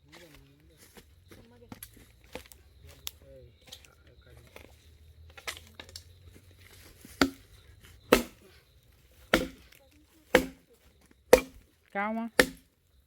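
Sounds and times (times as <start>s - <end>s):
axe chopping wood: 7.1s - 7.5s, 8.1s - 8.5s, 9.3s - 10.7s, 11.3s - 11.7s, 12.4s - 12.7s.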